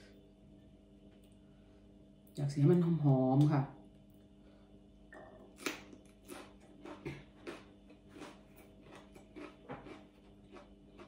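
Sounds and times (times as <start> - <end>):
faint room hum: 0.0 - 11.0
person chewing food: 5.2 - 11.0.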